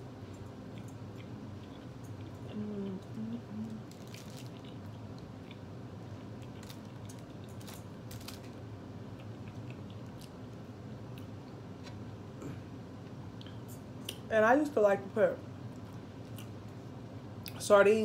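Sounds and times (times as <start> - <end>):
person chewing with mouth clicks: 0.7 - 5.7, 9.1 - 10.4
person humming: 2.4 - 3.9.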